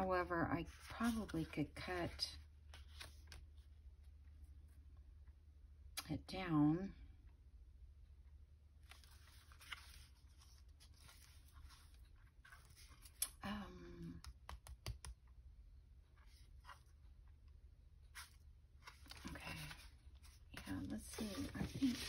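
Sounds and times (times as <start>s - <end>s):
paper rustling: 8.8s - 13.2s, 18.1s - 22.0s.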